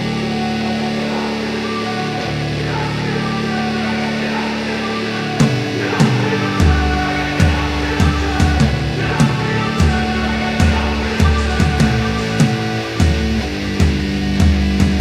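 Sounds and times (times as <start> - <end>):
guitar chords: 0.0 - 15.0
drum hits: 5.4 - 15.0
pulsing bass: 5.4 - 15.0.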